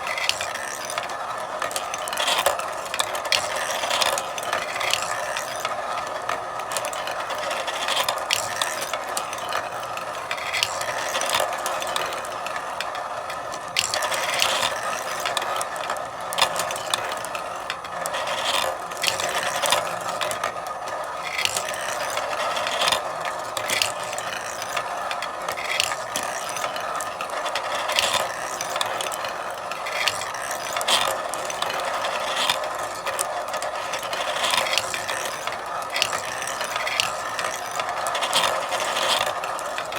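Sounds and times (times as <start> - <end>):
marbles clicking: 0.0 - 39.9
marbles rolling on track: 0.0 - 39.9.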